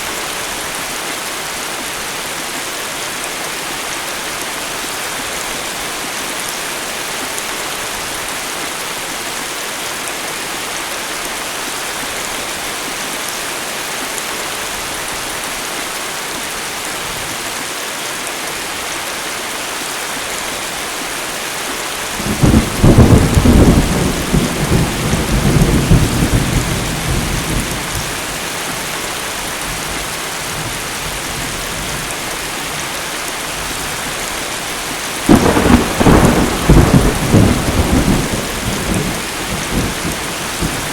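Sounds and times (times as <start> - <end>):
heavy rain falling: 0.0 - 40.9
thunderclap rumbling: 22.2 - 28.0, 35.3 - 40.9.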